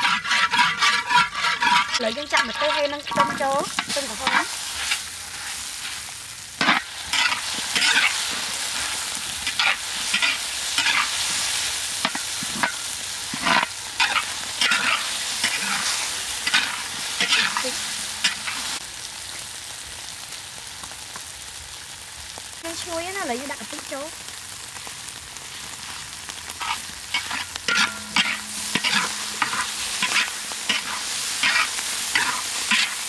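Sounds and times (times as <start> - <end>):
metal ladle scraping a wok: 0.0 - 18.8, 25.8 - 33.0
sizzling in hot oil: 0.0 - 33.0.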